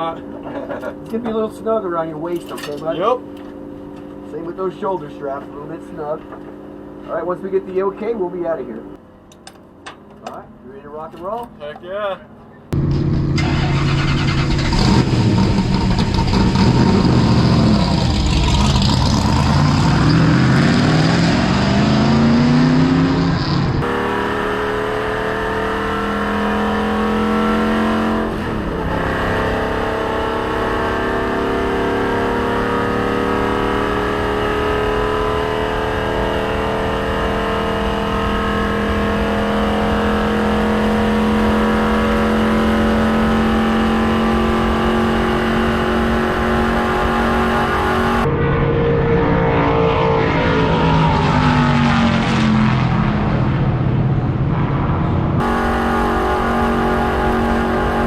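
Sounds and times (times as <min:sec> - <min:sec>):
race car engine accelerating: 0:12.7 - 0:58.0.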